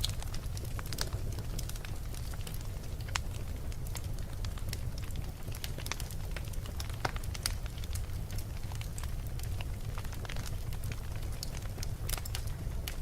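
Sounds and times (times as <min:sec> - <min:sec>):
flames rumbling: 0:00.0 - 0:13.0
wood crackling and popping: 0:00.0 - 0:13.0.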